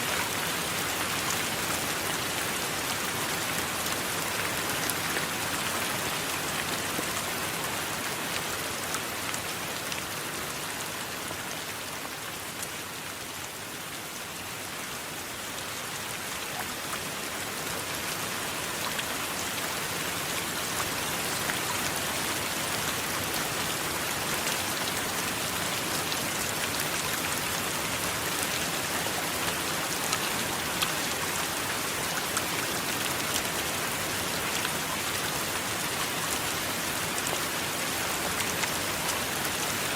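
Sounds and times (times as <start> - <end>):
heavy rain falling: 15.1 - 39.9.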